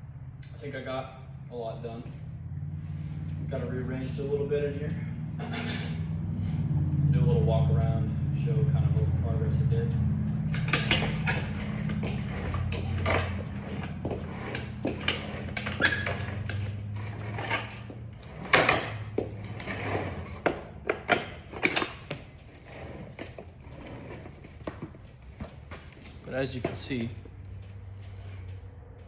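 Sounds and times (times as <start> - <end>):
tools knocking and clattering: 10.4 - 19.4, 20.2 - 22.3.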